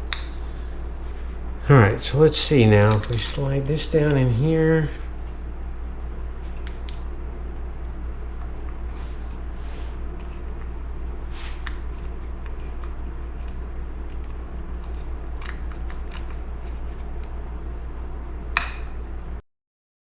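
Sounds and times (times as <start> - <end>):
steady low hum: 0.0 - 19.4
small parts clicking and scraping: 2.7 - 4.2.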